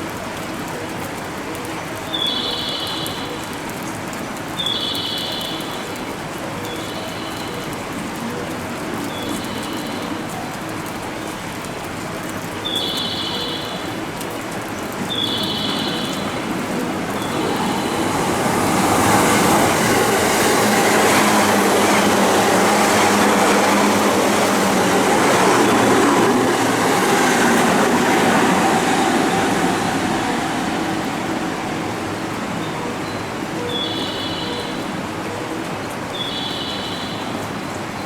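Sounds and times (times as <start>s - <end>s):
electric train rumbling: 15.0s - 33.8s.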